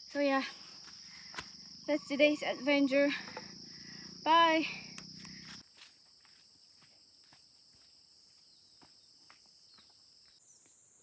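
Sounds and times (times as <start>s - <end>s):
insects trilling: 0.0s - 11.0s
faint ticks: 4.9s - 5.6s.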